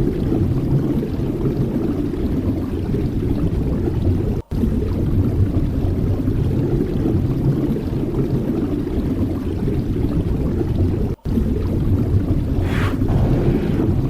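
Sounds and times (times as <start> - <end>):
sea waves rumbling: 12.6 - 14.0
wave breaking: 12.6 - 14.0.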